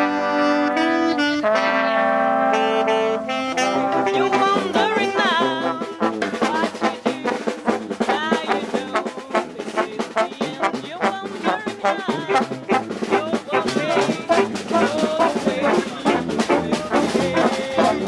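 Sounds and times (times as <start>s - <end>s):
horns playing a line: 0.0s - 18.0s
drum kit steady beat: 3.8s - 18.0s.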